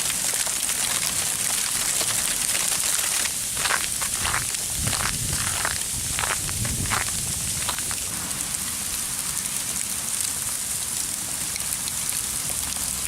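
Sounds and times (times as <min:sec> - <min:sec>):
sleet pellets ticking: 0:02.0 - 0:08.1.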